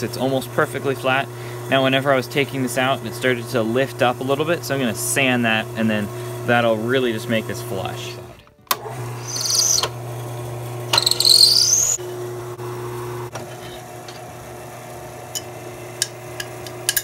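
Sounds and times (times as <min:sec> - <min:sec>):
high-pitched cutter squeal: 0:09.2 - 0:09.9, 0:11.0 - 0:12.0.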